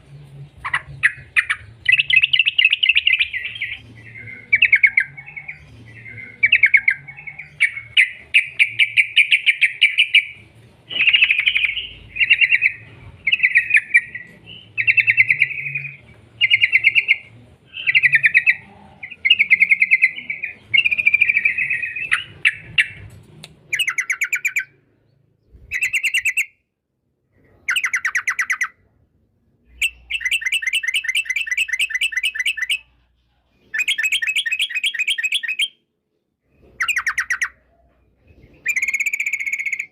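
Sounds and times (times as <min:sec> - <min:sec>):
bird chattering song: 0:00.0 - 0:24.8, 0:25.4 - 0:26.6, 0:27.4 - 0:28.8, 0:29.7 - 0:33.0, 0:33.6 - 0:35.8, 0:36.6 - 0:39.9.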